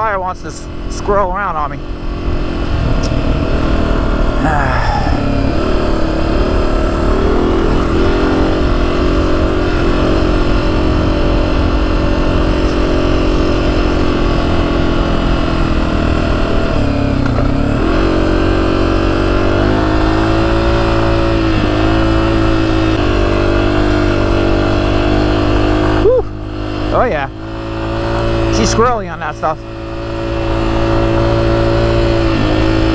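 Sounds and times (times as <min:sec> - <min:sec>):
dirt bike engine under throttle: 0:00.0 - 0:32.9.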